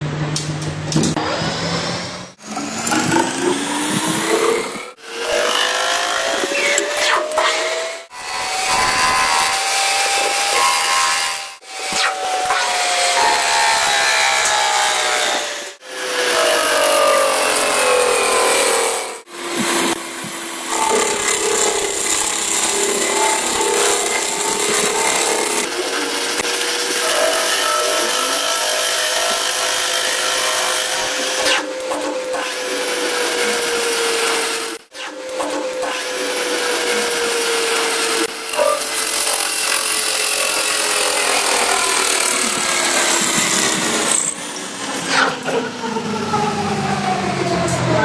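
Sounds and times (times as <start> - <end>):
machine motor whining: 0.6 - 48.0
power tool cutting whir: 1.1 - 47.7.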